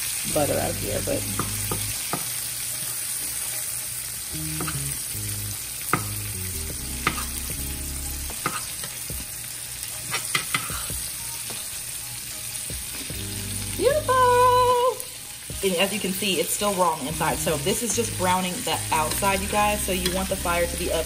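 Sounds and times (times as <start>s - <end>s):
chicken sizzling in butter: 0.0s - 21.0s
metal spoon scraping a pan: 7.0s - 7.4s, 8.4s - 9.0s, 10.0s - 10.9s.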